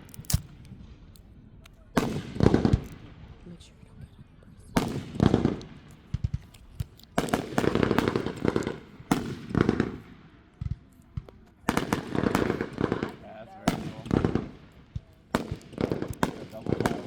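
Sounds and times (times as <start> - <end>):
fireworks crackling: 4.8 - 10.2, 11.1 - 17.0.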